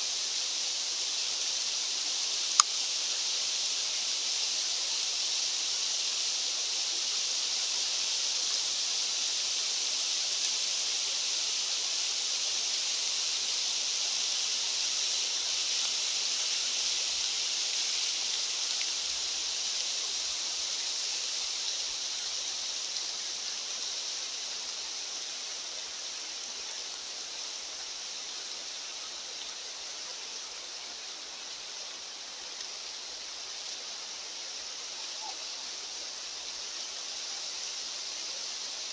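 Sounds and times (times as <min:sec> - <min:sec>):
high-pitched rushing hiss: 0:00.0 - 0:38.9.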